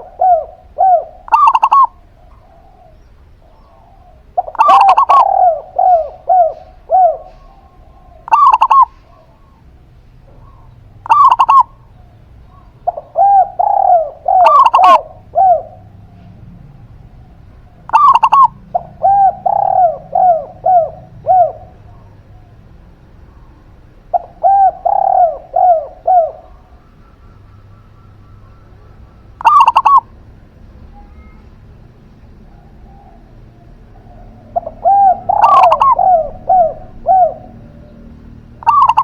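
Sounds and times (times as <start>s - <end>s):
short loud bird calls: 0.0s - 16.3s, 23.2s - 30.1s, 32.5s - 39.0s
doves cooing: 0.0s - 39.0s.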